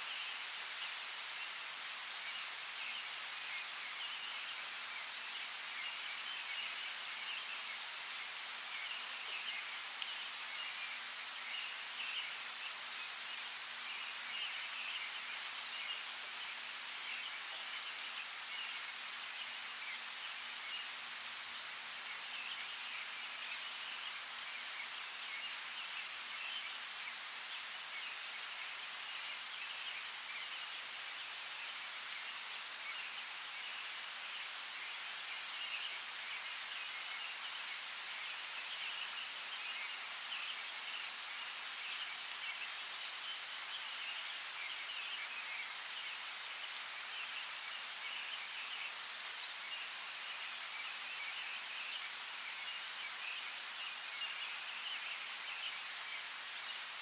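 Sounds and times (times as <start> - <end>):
steady rainfall: 0.0 - 57.0
raindrops ticking on a surface: 0.1 - 20.6, 22.3 - 45.3.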